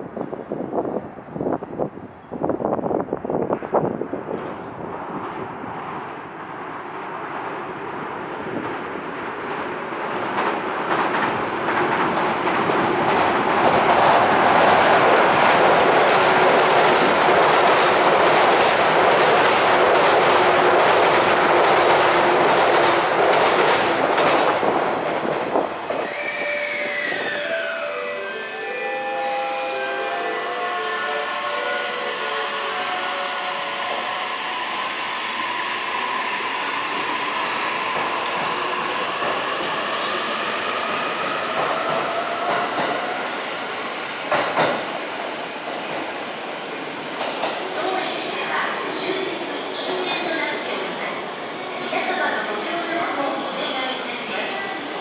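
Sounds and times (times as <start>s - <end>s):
electric train passing: 2.4s - 55.0s.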